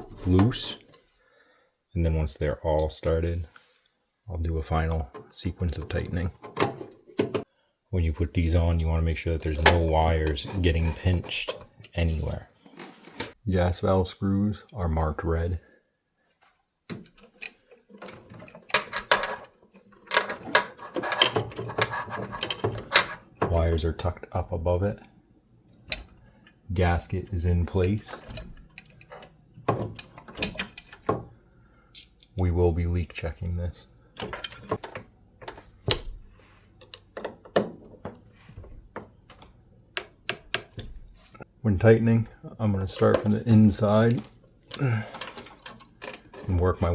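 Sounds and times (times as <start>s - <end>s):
metal parts clinking and rattling: 16.9s - 23.3s, 44.7s - 46.9s.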